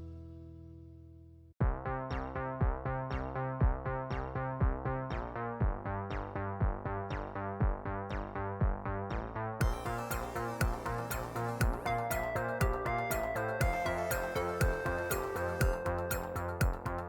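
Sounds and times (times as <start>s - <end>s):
electronic track with synthesizer: 1.6s - 17.0s
sustained background music: 9.6s - 17.0s.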